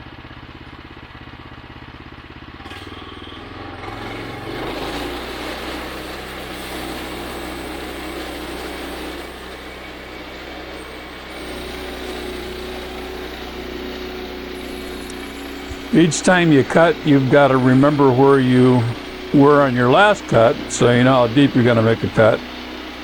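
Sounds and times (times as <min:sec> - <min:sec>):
gas engine running: 0:00.2 - 0:23.0
high whine: 0:09.1 - 0:23.0.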